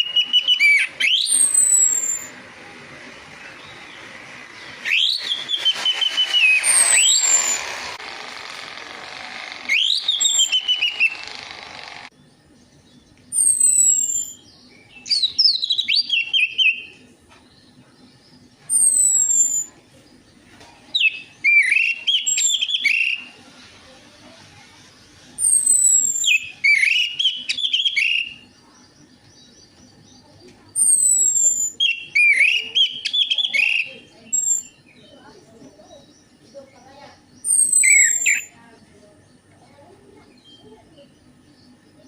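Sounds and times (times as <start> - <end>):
thrush singing: 0.8 - 12.1.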